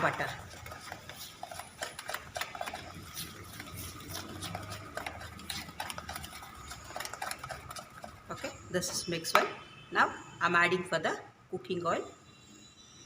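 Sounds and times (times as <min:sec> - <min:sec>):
utensil clinking against bowl: 0:00.0 - 0:09.5
utensil stirring batter: 0:00.0 - 0:09.8.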